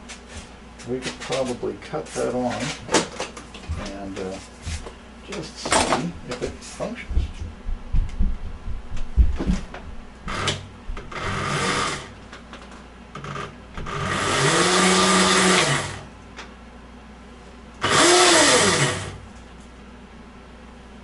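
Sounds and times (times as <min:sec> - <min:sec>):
electric motor whining: 0:10.3 - 0:12.1, 0:13.8 - 0:16.0, 0:17.8 - 0:19.2.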